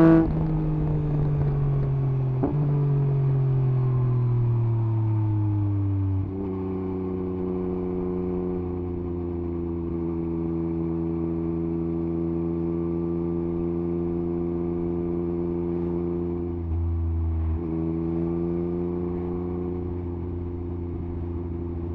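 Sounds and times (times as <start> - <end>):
motorcycle engine running: 0.0 - 3.1.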